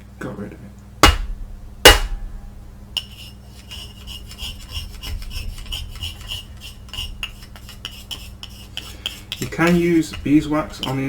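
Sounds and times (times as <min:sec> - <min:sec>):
metal tool scraping metal pan: 0:03.0 - 0:11.0.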